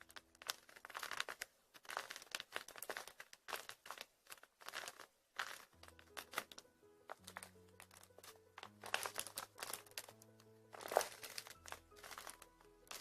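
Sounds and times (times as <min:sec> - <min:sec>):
foam toys crackling squeezes: 0:00.0 - 0:13.0
background music: 0:05.7 - 0:13.0.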